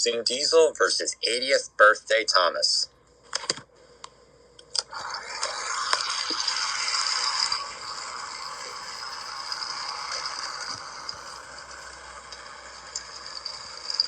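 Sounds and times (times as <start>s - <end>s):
toy train rattling on track: 5.6s - 14.0s.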